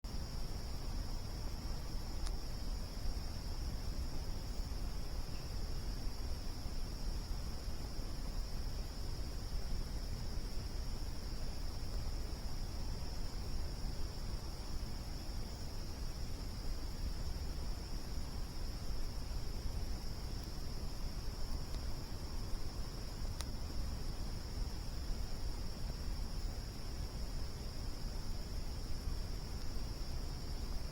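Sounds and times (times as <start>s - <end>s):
crickets chirring: 0.0s - 30.9s
low background noise: 0.0s - 30.9s
low steady rumble: 0.0s - 30.9s
campfire crackling: 8.4s - 30.9s
campfire pop: 20.2s - 24.0s.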